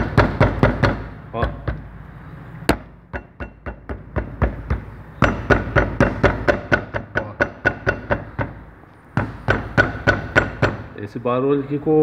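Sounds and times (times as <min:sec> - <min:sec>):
brake caliper knocking metal on metal: 0:02.7 - 0:08.6.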